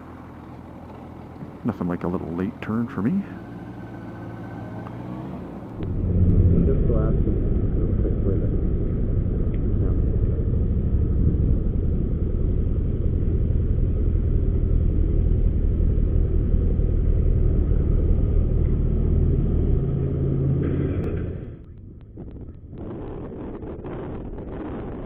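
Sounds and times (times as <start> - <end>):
motorcycle engine rumble: 0.0 - 25.0
wind noise: 5.6 - 17.2, 20.7 - 25.0.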